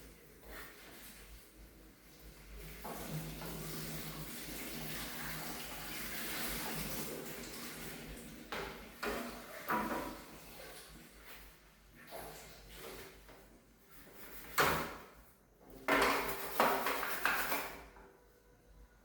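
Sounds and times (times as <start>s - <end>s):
water running from a tap: 1.9s - 11.3s.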